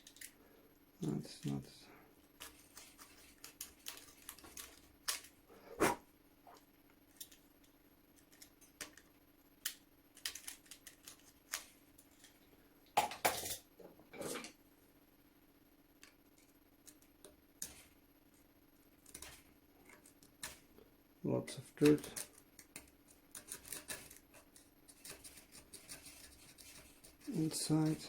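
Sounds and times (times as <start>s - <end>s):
knife scraping metal screws: 21.9s - 27.2s.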